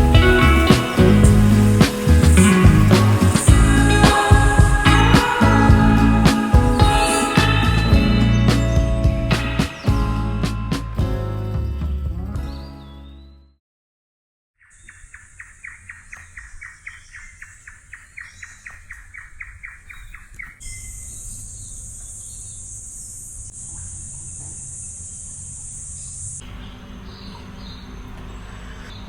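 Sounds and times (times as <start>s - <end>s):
bird chirping rapidly: 14.6s - 29.0s.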